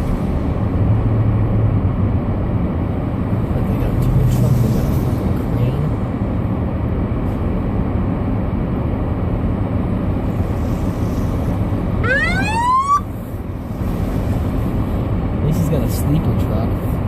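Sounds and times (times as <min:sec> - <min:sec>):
rising whine: 0:12.0 - 0:13.2.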